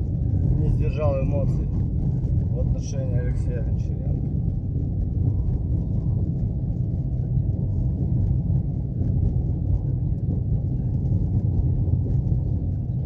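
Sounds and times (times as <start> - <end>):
car engine rumble: 0.0 - 13.0.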